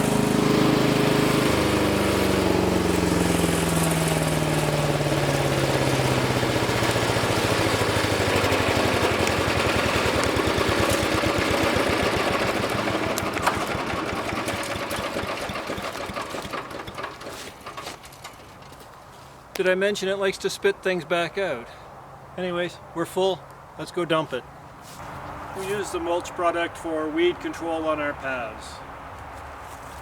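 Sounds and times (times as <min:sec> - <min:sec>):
wood chipper engine spinning down: 0:00.0 - 0:18.0.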